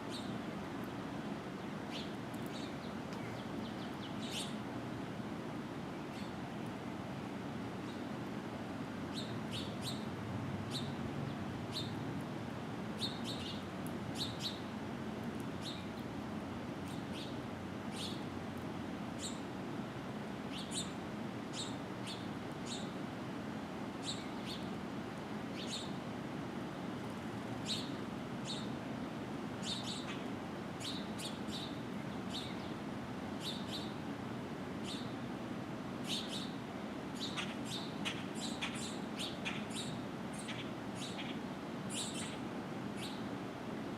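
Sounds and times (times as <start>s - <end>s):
low background hum: 0.0s - 43.9s
birds chirping: 0.1s - 4.6s, 9.1s - 10.1s, 13.0s - 14.7s, 15.6s - 16.0s, 16.9s - 18.2s, 19.2s - 19.4s, 20.5s - 23.0s, 24.0s - 24.8s, 25.5s - 26.0s, 27.6s - 28.8s, 29.6s - 32.8s, 33.4s - 34.0s, 34.8s - 35.2s, 36.0s - 36.6s, 37.2s - 43.3s.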